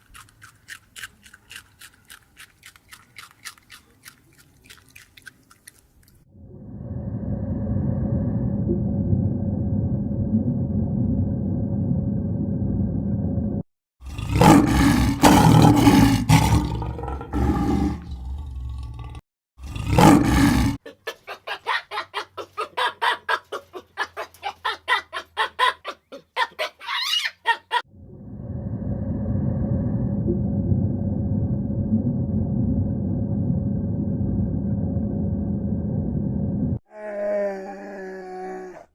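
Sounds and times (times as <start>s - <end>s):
low animal rumble: 6.4s - 20.8s, 27.9s - 36.8s.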